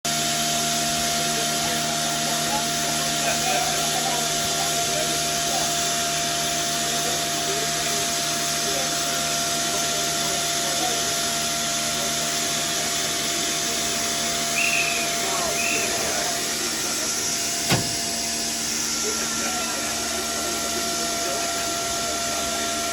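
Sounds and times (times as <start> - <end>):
steam engine hissing: 12.2 - 19.3.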